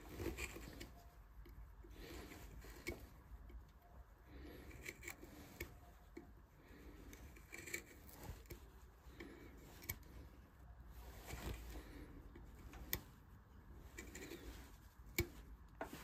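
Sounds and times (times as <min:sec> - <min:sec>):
carving tool scraping wood: 0:00.0 - 0:01.0, 0:01.8 - 0:03.3, 0:04.3 - 0:10.2, 0:13.8 - 0:16.0.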